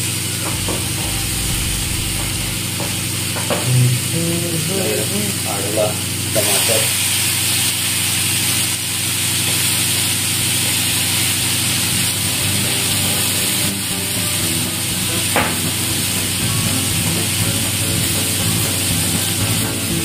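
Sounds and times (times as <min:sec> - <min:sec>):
vegetables sizzling in a frying pan: 0:06.4 - 0:20.0.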